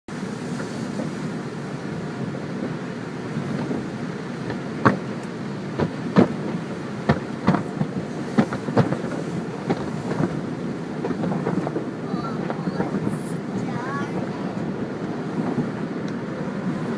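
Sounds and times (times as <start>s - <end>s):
car wash machinery rumbling: 0.1s - 16.9s
sharp knocks and clacks: 5.8s - 10.4s.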